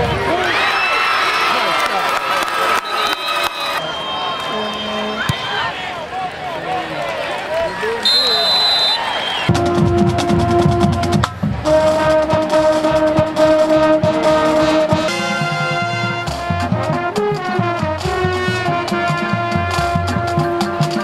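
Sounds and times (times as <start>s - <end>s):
trumpets and trombones: 8.0s - 21.0s
steady drum beat: 9.5s - 21.0s.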